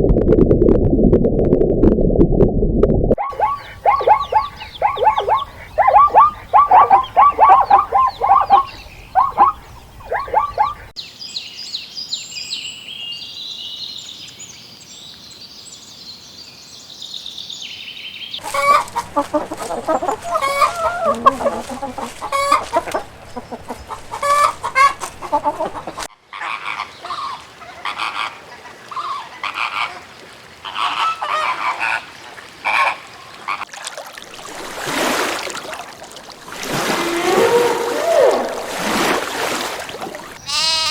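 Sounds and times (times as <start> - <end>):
overlapping flock calls: 3.2 - 10.9, 18.4 - 33.6
poultry clucking: 3.2 - 10.9, 18.4 - 28.3.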